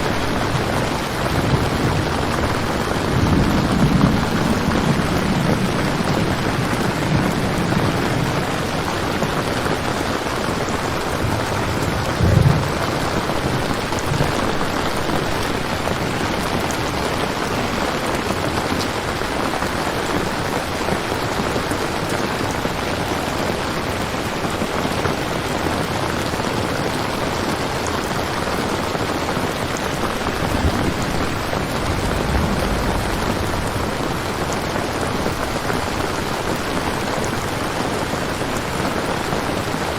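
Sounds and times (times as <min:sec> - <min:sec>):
thunder rumbling: 0:00.0 - 0:21.7, 0:29.5 - 0:39.2
rain falling: 0:00.0 - 0:39.9.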